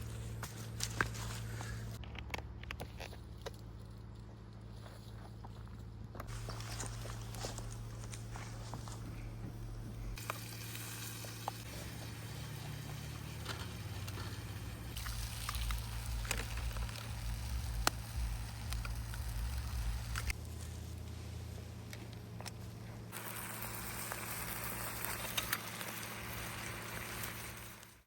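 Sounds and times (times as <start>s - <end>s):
campfire crackling and popping: 6.2s - 20.6s, 21.9s - 28.0s.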